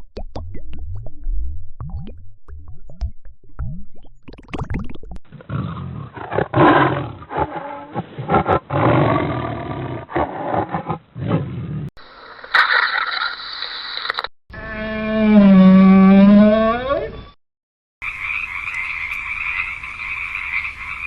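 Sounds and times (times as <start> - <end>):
lion roaring: 5.3 - 11.9.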